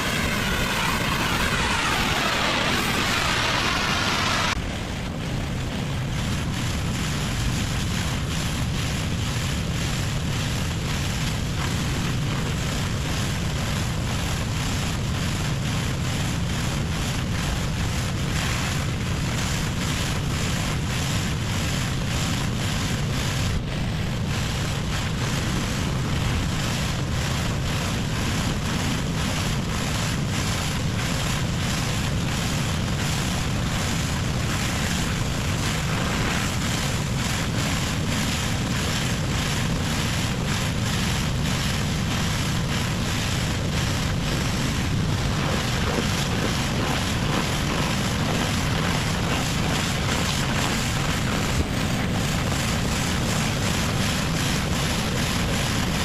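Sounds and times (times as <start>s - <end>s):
high-pressure water spraying: 0.0s - 4.6s, 31.1s - 56.0s
pressure washer drone: 0.0s - 5.1s, 30.9s - 56.0s.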